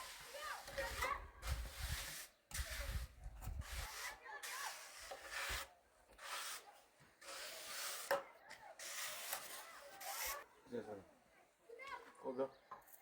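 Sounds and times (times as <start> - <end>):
rasping sanding strokes: 0.0 - 8.2, 8.8 - 10.4.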